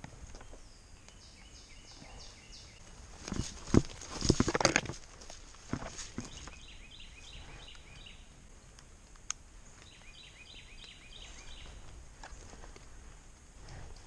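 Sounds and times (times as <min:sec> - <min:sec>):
bird chirping: 0:00.3 - 0:03.6, 0:05.9 - 0:08.4, 0:09.6 - 0:12.6.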